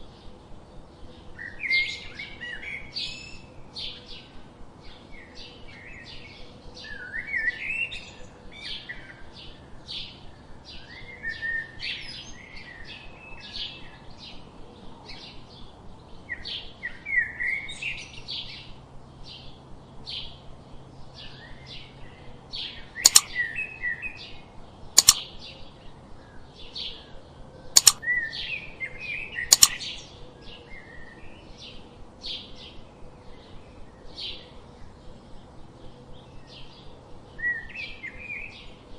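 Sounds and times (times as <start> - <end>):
songbirds chirping: 0.0 - 38.9
sharp clicks: 23.1 - 23.3, 25.0 - 25.3, 27.8 - 28.0, 29.5 - 29.8.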